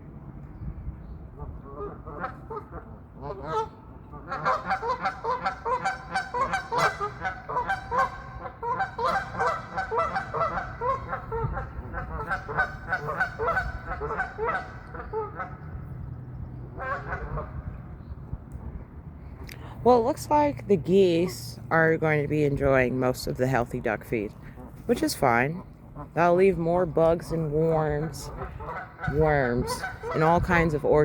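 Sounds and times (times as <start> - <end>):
geese honking: 1.4 - 15.9, 16.6 - 17.8, 23.5 - 31.0.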